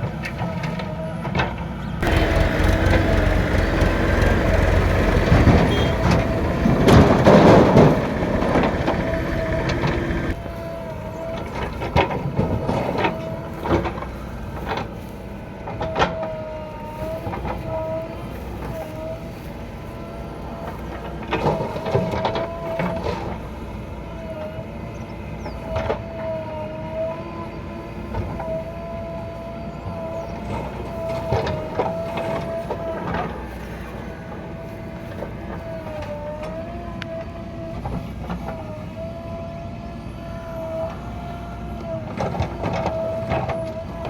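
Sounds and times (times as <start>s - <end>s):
diesel machinery running: 0.0s - 44.0s
machine whine: 0.2s - 44.0s.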